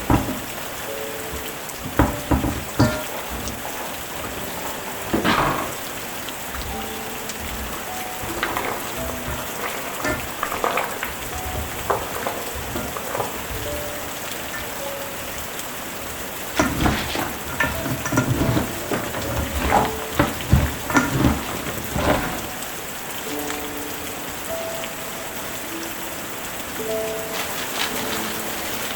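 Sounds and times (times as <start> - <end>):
food sizzling in a pan: 0.0 - 15.2, 26.7 - 28.9
utensil scraping a pan: 1.2 - 15.3, 15.9 - 22.7.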